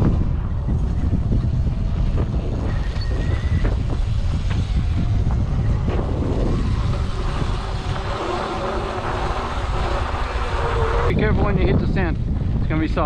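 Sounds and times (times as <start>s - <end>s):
wind buffeting microphone: 0.0s - 13.0s
bike knocks and rattles: 0.7s - 10.5s.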